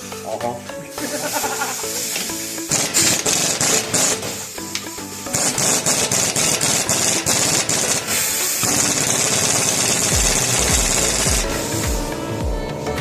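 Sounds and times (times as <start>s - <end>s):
high hiss: 0.0s - 12.9s
power tool rattling and hammering: 2.2s - 12.1s.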